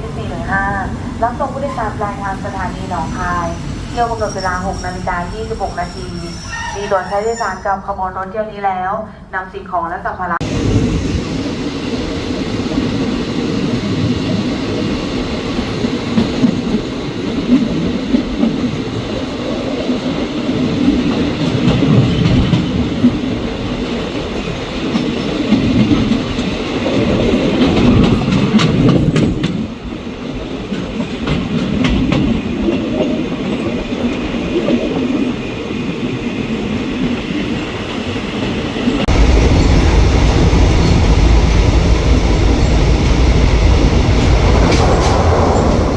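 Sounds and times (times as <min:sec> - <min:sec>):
diesel train rumbling on track: 0:00.0 - 0:08.4, 0:10.2 - 0:45.9
train wheel clicks: 0:27.5 - 0:29.6.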